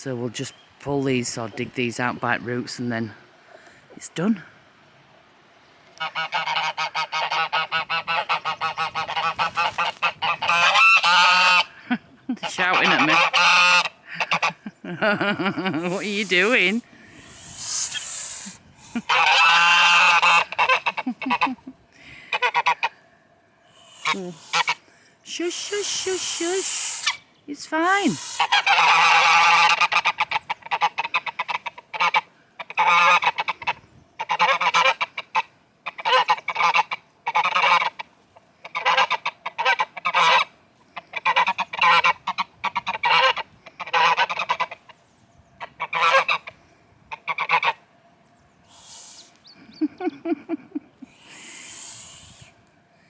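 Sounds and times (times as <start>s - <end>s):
geese honking loudly: 6.0s - 11.8s, 12.4s - 14.6s, 15.7s - 22.9s, 23.7s - 45.0s, 45.6s - 47.8s.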